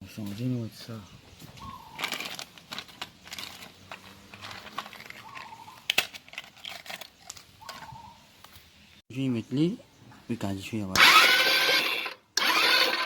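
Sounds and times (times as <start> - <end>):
faint bird chirps: 0.8 - 2.2, 7.6 - 10.5
crinkling and rustling: 1.4 - 8.7.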